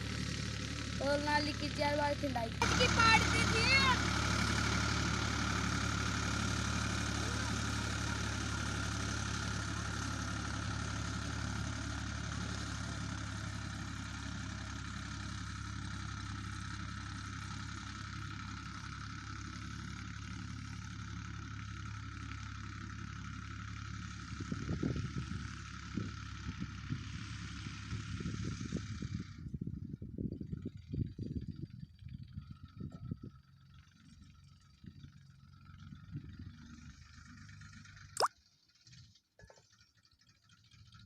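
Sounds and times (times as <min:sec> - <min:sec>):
tractor engine idling: 0:00.0 - 0:29.3, 0:31.6 - 0:38.1, 0:39.6 - 0:41.0.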